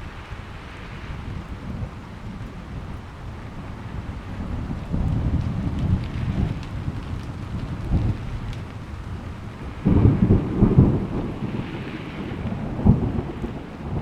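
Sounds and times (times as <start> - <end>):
crackling thunder rumble: 0.0 - 14.0
rolling thunder: 0.0 - 14.0
steady rain: 0.0 - 14.0.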